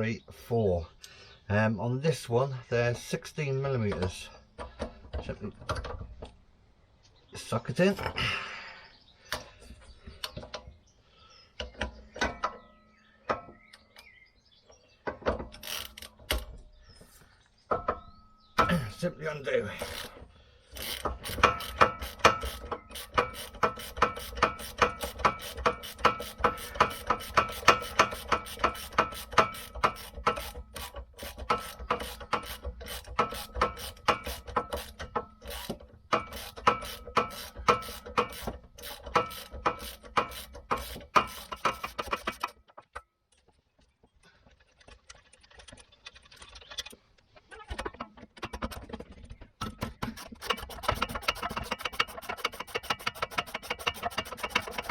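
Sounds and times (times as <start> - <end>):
socket ratchet clicking: 20.8 - 42.5, 50.4 - 54.9.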